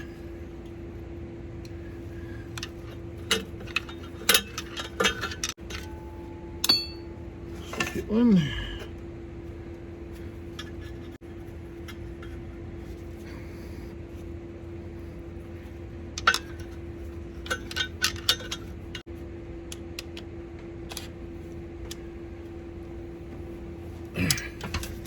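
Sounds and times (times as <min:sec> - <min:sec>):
steady hum: 0:00.0 - 0:25.0
metal tools and bolts clinking: 0:02.5 - 0:08.1, 0:16.2 - 0:19.0.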